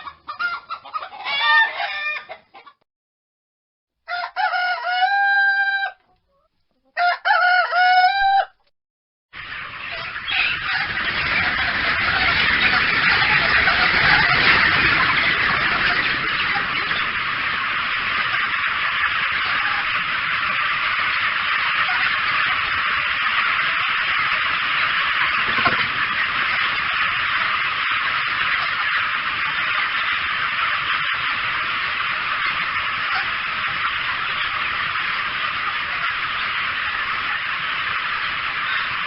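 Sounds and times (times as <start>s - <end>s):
rooster crowing: 4.1s - 6.0s, 7.0s - 8.6s.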